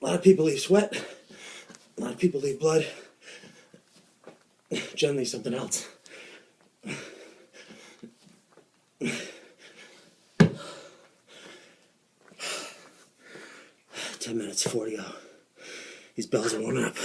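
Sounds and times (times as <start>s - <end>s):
man breathing hard: 0.9s - 1.8s, 2.8s - 3.9s, 5.8s - 8.2s, 9.0s - 14.2s, 15.1s - 16.2s.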